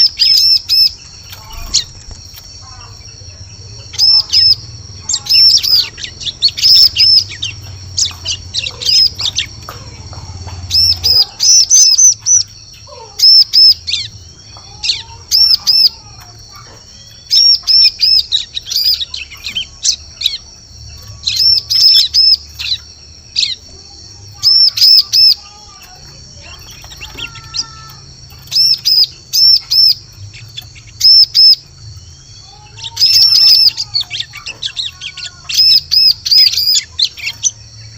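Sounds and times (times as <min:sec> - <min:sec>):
high-pitched bird chirping: 0:00.0 - 0:37.9
other birds calling: 0:00.0 - 0:37.9.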